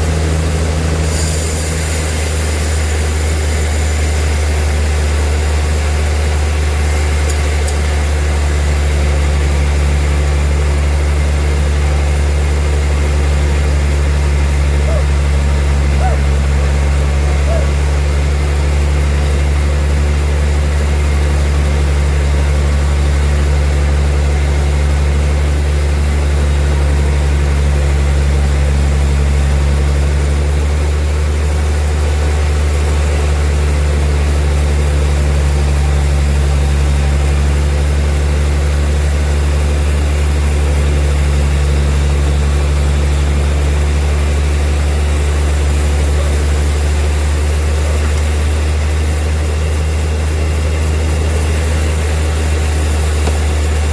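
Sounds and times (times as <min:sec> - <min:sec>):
bandsaw running: 0:00.0 - 0:22.8, 0:39.7 - 0:53.9.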